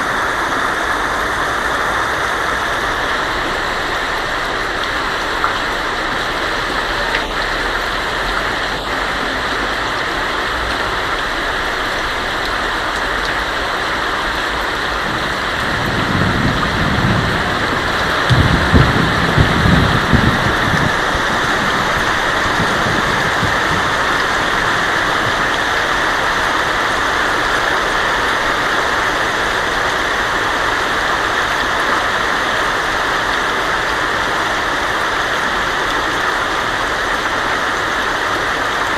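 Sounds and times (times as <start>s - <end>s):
heavy rain on a tin roof: 0.0s - 38.9s
thunder rolling: 14.2s - 27.0s.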